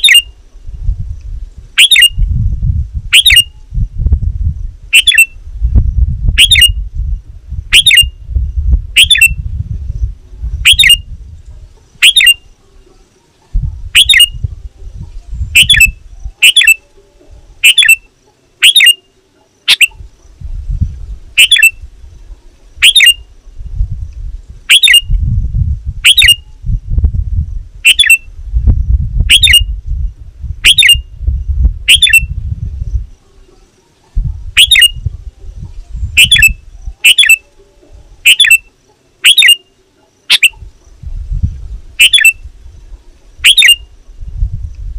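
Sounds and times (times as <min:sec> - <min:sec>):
bird calling sharply: 0:01.8 - 0:02.2, 0:05.0 - 0:05.4, 0:06.4 - 0:06.8, 0:07.7 - 0:08.1, 0:12.0 - 0:12.5, 0:15.6 - 0:17.0, 0:17.6 - 0:20.0, 0:21.4 - 0:21.8, 0:22.8 - 0:23.2, 0:24.7 - 0:25.1, 0:30.6 - 0:31.0, 0:34.6 - 0:35.0, 0:36.2 - 0:37.5, 0:38.2 - 0:40.6, 0:42.0 - 0:42.4.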